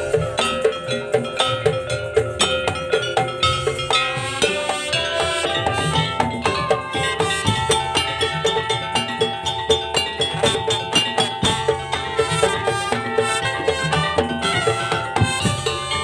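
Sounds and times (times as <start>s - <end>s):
wooden and bamboo percussion: 0.0s - 16.0s
held pitched melody: 3.4s - 16.0s.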